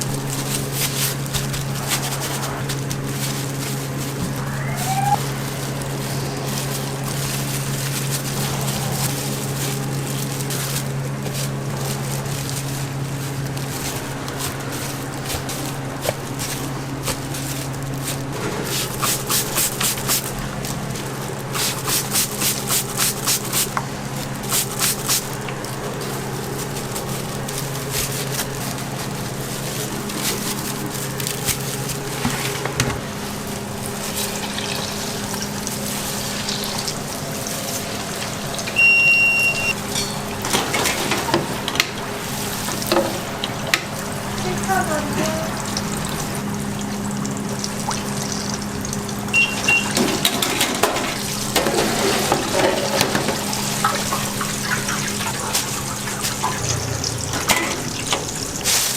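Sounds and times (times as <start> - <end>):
low machine hum: 23.7 - 58.9.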